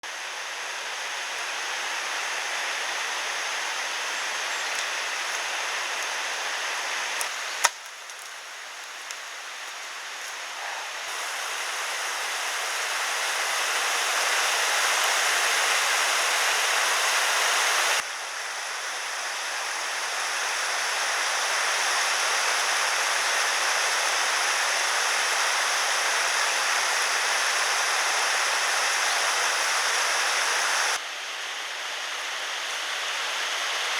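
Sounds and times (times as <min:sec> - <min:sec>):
flowing water rushing: 0:10.5 - 0:18.0, 0:19.4 - 0:31.0.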